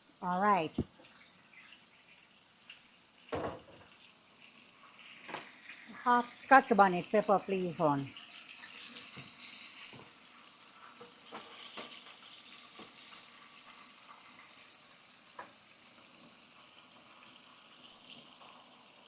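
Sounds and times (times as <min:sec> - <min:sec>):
fish sizzling in a pan: 0:00.0 - 0:19.0.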